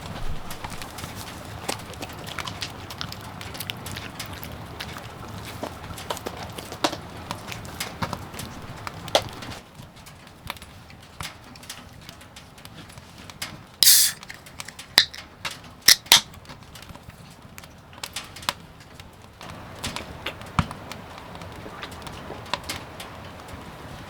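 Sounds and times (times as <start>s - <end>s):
sharp clicks: 13.8s - 15.2s
short hiss: 13.8s - 15.2s
handling clicks and knocks: 13.8s - 15.3s, 15.9s - 16.2s.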